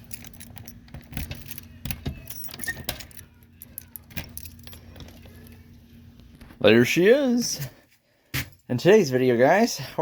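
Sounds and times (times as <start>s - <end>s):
light metal clicks and rattles: 0.0s - 5.3s
faint steady hum: 0.0s - 10.0s.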